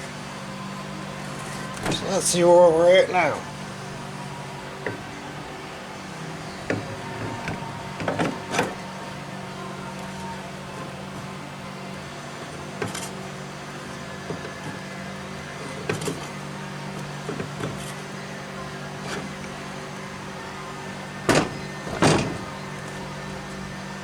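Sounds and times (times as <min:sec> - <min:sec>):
metal clicks and knocks: 0:21.3 - 0:23.0.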